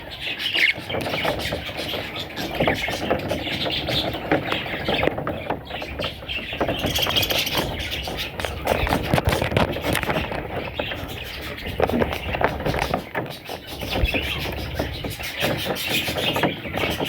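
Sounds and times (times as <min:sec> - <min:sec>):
budgerigar chicks chirping: 0:00.0 - 0:17.0
small clicks and rustles: 0:00.4 - 0:17.0.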